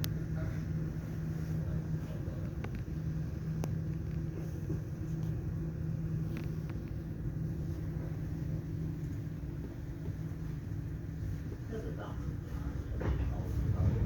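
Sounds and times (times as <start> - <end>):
train rumbling on track: 9.3 - 14.0.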